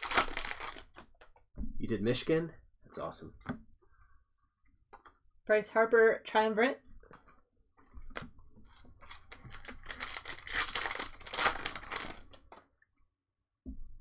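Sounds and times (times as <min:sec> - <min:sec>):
wrapper tearing and crinkling: 0:00.0 - 0:01.0, 0:08.7 - 0:12.6.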